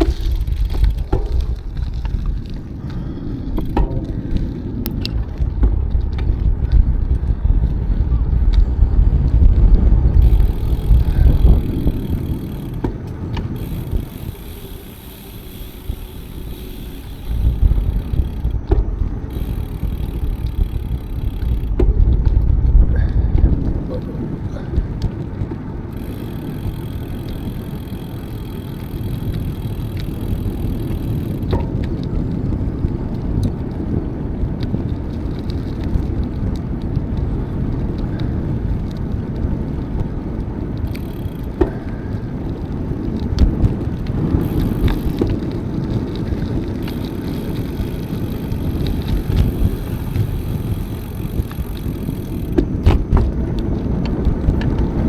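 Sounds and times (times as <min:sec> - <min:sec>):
bicycle tyres on path: 0:00.0 - 0:55.0
wind on microphone: 0:00.0 - 0:55.0.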